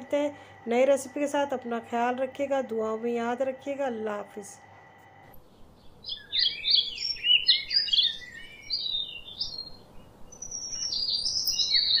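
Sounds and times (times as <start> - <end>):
songbird chirping and warbling: 5.4 - 12.0.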